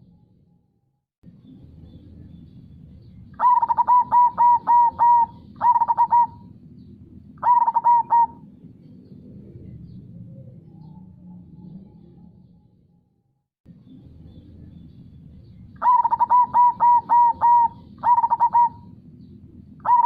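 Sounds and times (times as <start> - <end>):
dove cooing: 3.4 - 6.6, 7.4 - 8.6, 15.8 - 19.0, 19.8 - 20.0.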